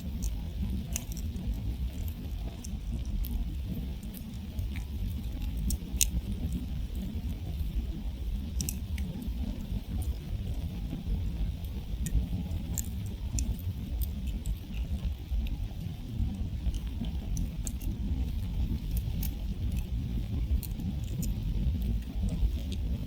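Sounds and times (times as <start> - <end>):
campfire crackling and popping: 0.0 - 23.0
steady low rumble: 0.0 - 23.0.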